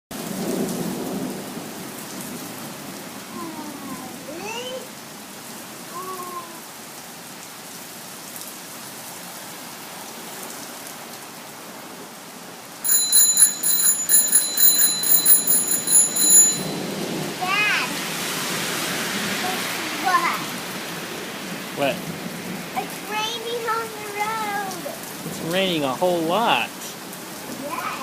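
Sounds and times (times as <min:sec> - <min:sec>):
heavy rain falling: 0:00.1 - 0:12.9, 0:16.6 - 0:28.0
high-pitched pulsing ringing: 0:12.9 - 0:16.9.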